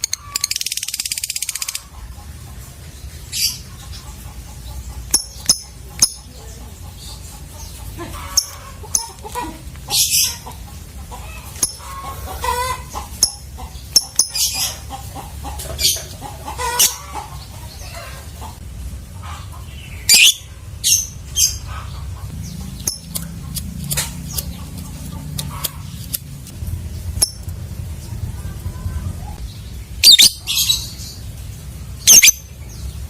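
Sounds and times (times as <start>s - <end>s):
lovebirds chirping shrilly: 0.0s - 1.9s, 29.4s - 31.2s, 32.0s - 32.6s.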